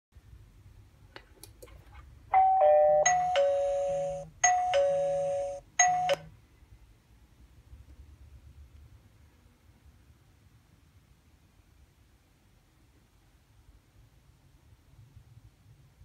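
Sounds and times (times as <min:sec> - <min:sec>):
two-tone doorbell chime: 0:02.3 - 0:06.3.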